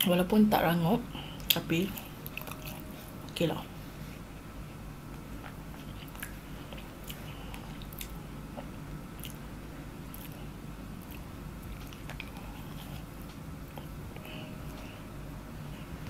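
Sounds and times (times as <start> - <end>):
chewing mouth sounds: 5.4 - 9.4, 10.1 - 10.4, 11.0 - 14.0.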